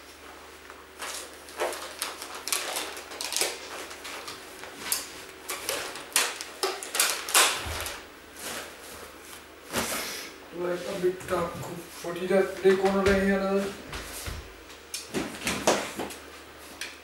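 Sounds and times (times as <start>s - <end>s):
objects rustling and knocking: 0.9s - 10.0s.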